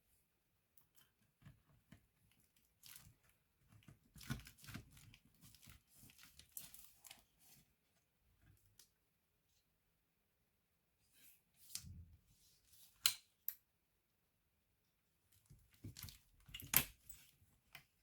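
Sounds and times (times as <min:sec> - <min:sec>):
scratching and crinkling handling: 0:00.9 - 0:08.8, 0:15.3 - 0:18.0.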